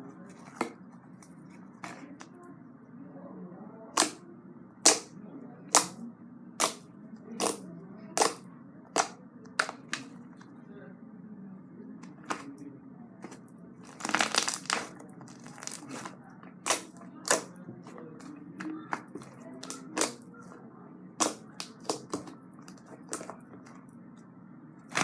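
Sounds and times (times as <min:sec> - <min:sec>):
slime wet pops and crackles: 0:04.0 - 0:04.2, 0:07.4 - 0:07.6, 0:08.2 - 0:10.0, 0:13.9 - 0:17.5, 0:18.9 - 0:20.2, 0:21.2 - 0:23.4.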